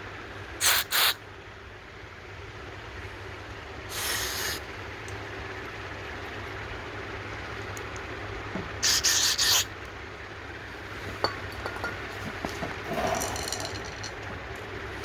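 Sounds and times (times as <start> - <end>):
hissing spray blast: 0.6 - 1.2, 3.9 - 4.6
small metal parts clinking: 11.2 - 14.8.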